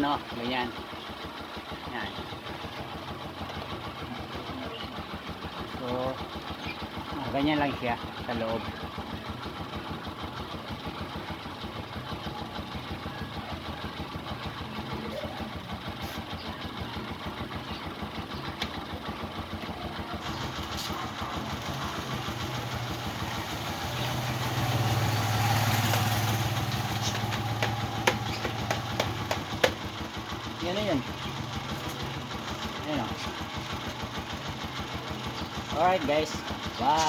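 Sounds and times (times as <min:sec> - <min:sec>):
motorcycle engine idling: 0:00.0 - 0:37.0.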